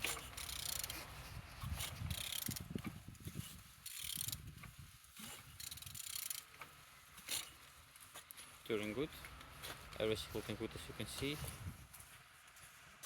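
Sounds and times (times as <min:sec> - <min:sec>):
ratchet wrench clicking: 0:00.0 - 0:01.0, 0:01.8 - 0:02.9, 0:03.8 - 0:04.5, 0:05.2 - 0:06.5
engine internals rotating: 0:00.0 - 0:07.6.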